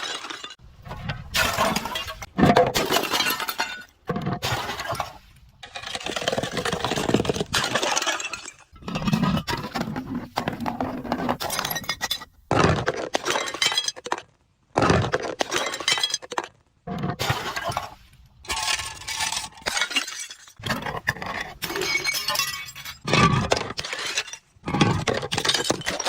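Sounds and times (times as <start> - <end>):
glass bottles shattering: 0.0 - 0.6, 1.4 - 5.2, 11.4 - 12.3, 13.2 - 14.2, 15.4 - 16.4, 18.5 - 20.6, 21.6 - 26.0.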